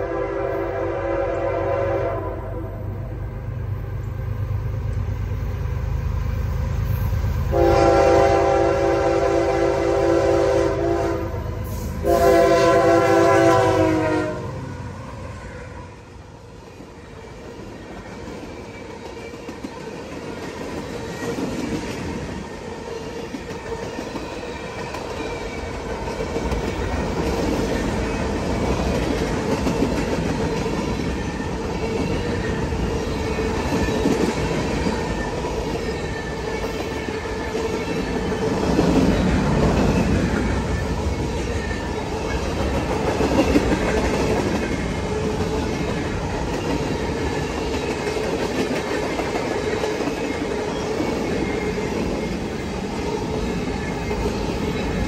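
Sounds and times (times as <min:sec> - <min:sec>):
train air horn blasts: 0:00.0 - 0:03.0, 0:07.5 - 0:14.7
train wheels clacking on rails: 0:16.8 - 0:55.0.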